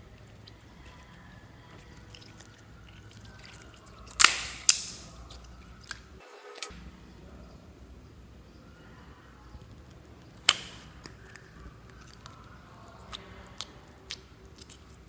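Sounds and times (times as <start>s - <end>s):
slime being mixed by hand: 0.0s - 6.7s, 9.6s - 15.0s
loud sharp pops: 4.2s - 5.1s.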